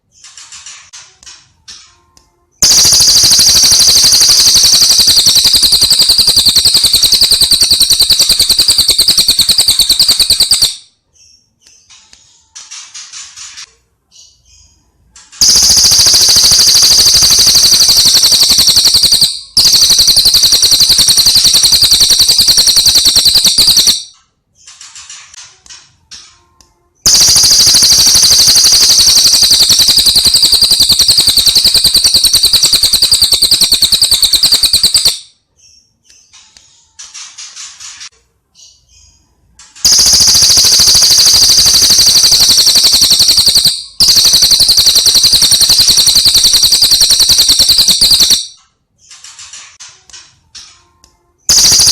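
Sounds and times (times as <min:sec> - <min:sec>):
rapid high-pitched bird trills: 0:02.6 - 0:11.9, 0:15.4 - 0:25.1, 0:27.0 - 0:36.4, 0:39.8 - 0:48.6, 0:51.5 - 0:51.9.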